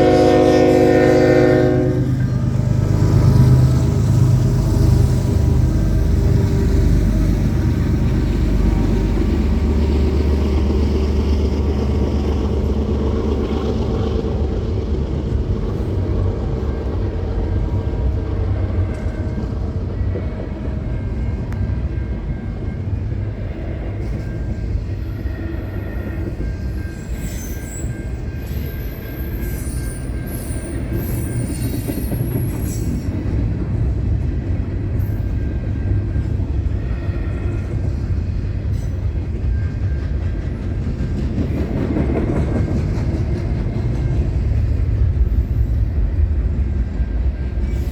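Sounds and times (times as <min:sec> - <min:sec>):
train wheels rumbling on rail: 0:00.0 - 0:47.9
high-pitched wheel squeals: 0:24.9 - 0:33.2.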